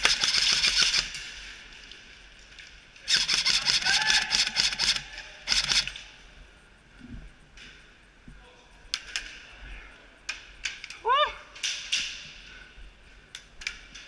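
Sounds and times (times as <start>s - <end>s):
airsoft guns firing bursts: 0.0s - 1.4s, 3.0s - 6.0s.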